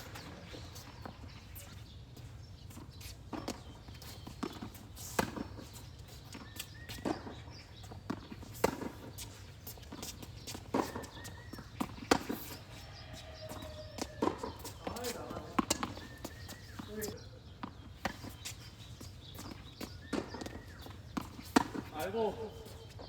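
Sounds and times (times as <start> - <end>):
tennis ball bouncing on court: 2.7 - 22.3
racquets striking tennis ball: 6.4 - 23.0.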